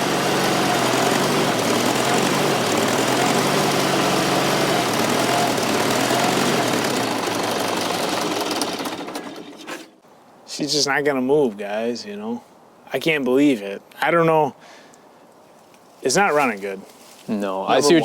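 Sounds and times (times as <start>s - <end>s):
diesel engine running: 0.0s - 9.6s.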